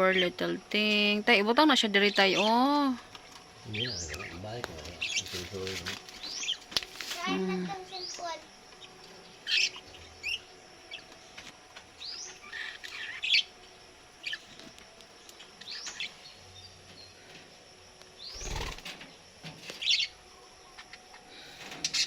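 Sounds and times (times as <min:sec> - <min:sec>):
budgerigars chirping: 0:03.7 - 0:04.4, 0:05.0 - 0:05.4, 0:09.4 - 0:11.0, 0:12.0 - 0:13.5, 0:18.3 - 0:18.8.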